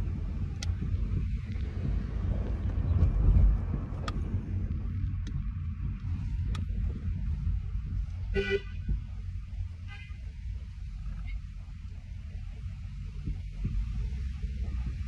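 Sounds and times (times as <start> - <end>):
car rumbling inside cabin: 0.0 - 15.0
faint clicks: 4.0 - 6.8.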